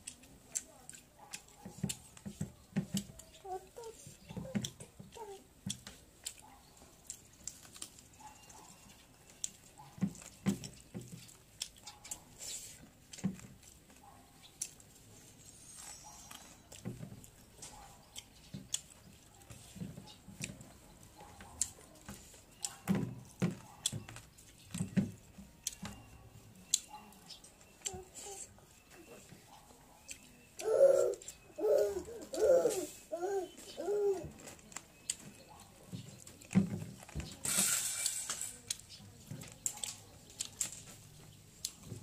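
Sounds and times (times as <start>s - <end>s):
wet chewing smacks: 4.6s - 15.0s.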